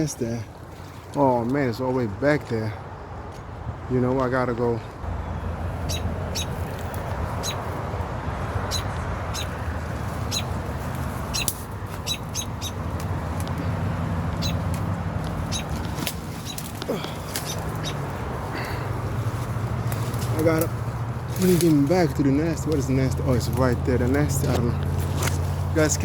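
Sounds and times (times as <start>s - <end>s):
bird chirping: 5.0s - 18.8s.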